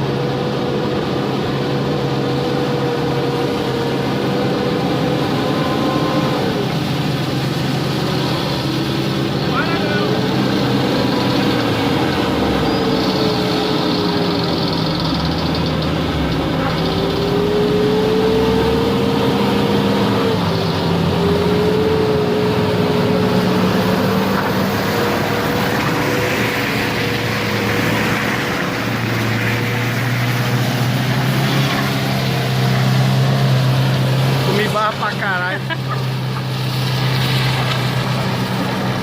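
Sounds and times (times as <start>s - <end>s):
car engine running: 0.0s - 39.0s.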